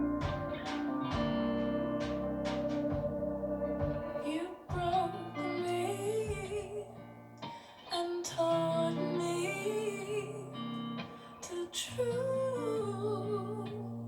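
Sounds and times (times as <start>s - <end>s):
gentle instrumental backing: 0.0s - 7.6s
woman singing softly: 4.0s - 7.1s, 7.8s - 14.0s.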